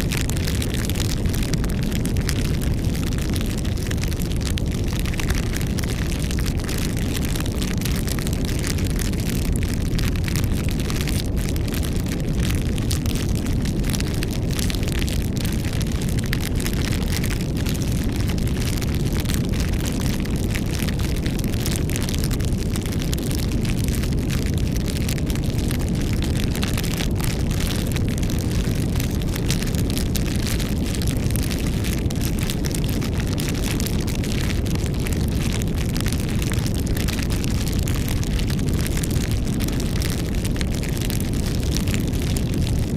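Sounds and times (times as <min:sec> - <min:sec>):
campfire crackling: 0:00.0 - 0:42.9
low rumble of flames: 0:00.0 - 0:42.9.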